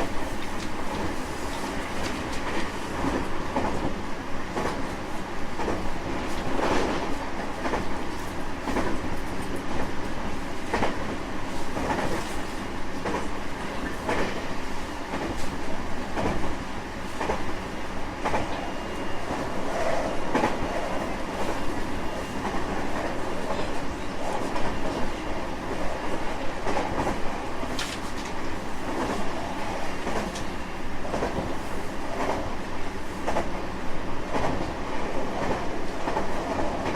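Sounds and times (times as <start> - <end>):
electric train rumbling: 0.0 - 36.9.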